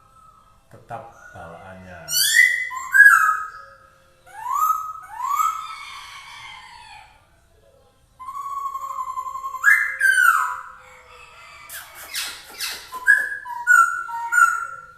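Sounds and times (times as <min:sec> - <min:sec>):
bird singing whistled notes: 0:02.1 - 0:05.9, 0:08.1 - 0:10.8, 0:11.7 - 0:14.9.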